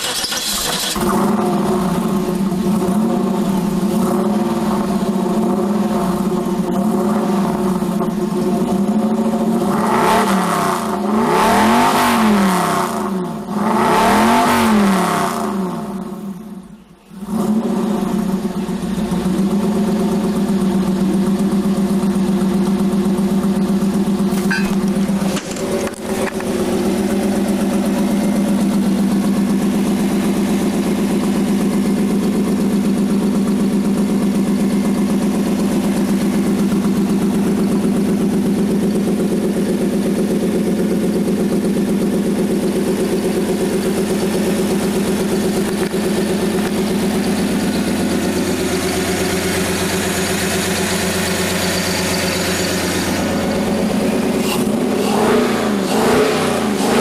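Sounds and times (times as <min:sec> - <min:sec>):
engine revving in blips: 0:00.0 - 0:16.4, 0:17.1 - 0:20.1, 0:42.8 - 0:57.0
car engine idling: 0:00.0 - 0:57.0.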